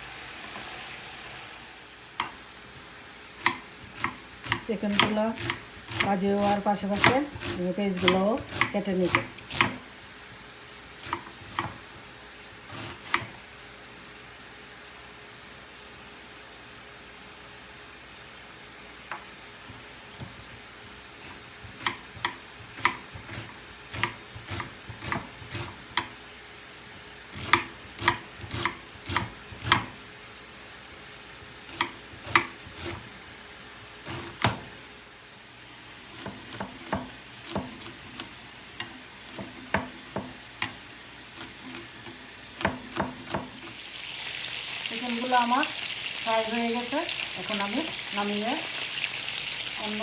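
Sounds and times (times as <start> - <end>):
knife chopping on cutting board: 3.4 - 9.8, 11.0 - 11.8, 12.7 - 13.3, 21.3 - 26.1, 27.3 - 30.0, 31.7 - 33.1, 34.0 - 34.7, 36.1 - 38.3, 39.3 - 40.8, 42.6 - 43.7.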